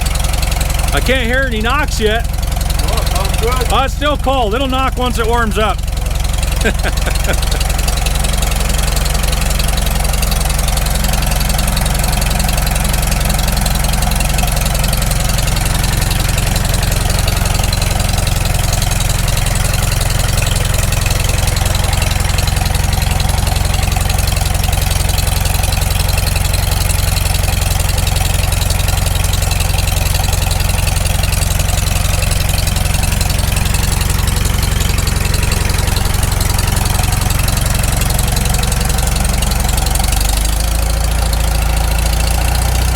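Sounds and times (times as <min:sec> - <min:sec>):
tractor engine idling: 0:00.0 - 0:42.9.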